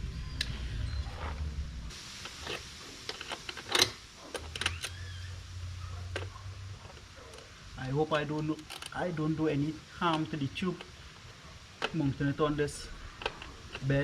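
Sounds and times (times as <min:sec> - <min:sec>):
low hum: 0:00.0 - 0:02.0.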